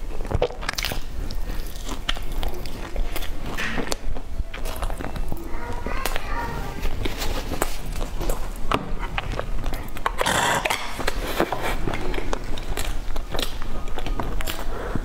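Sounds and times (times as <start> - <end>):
chewing soft pastry: 0.0 - 15.0.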